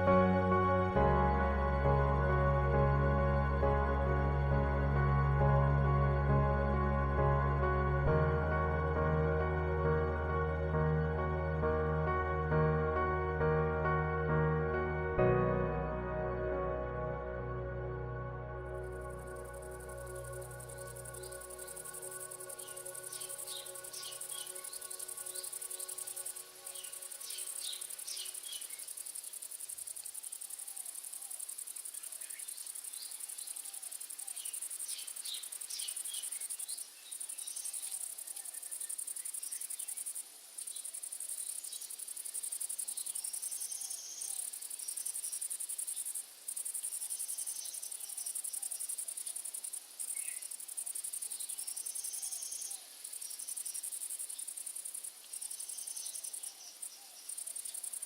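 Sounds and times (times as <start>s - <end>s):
insects chirring: 18.8s - 58.0s.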